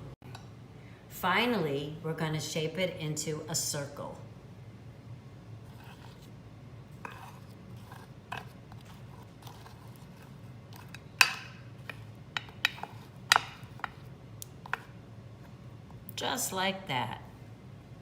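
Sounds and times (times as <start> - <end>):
spoons scraping a plate: 5.6 - 6.3, 6.9 - 15.0.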